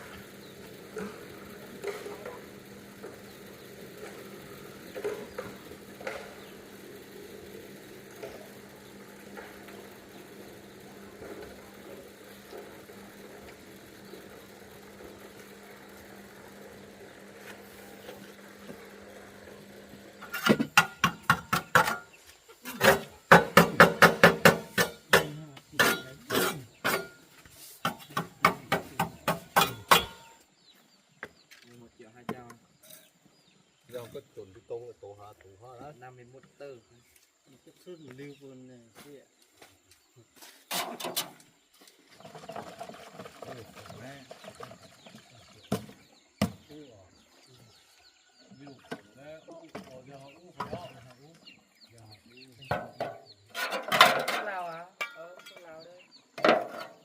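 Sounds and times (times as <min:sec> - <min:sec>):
loud sharp knocks: 0:22.8 - 0:26.0.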